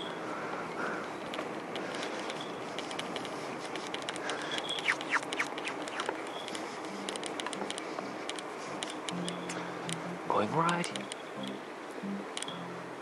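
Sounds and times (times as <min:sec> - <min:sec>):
steady outdoor hiss: 0:00.0 - 0:13.0
birds chirping: 0:04.3 - 0:07.0
light clicks: 0:10.7 - 0:11.6.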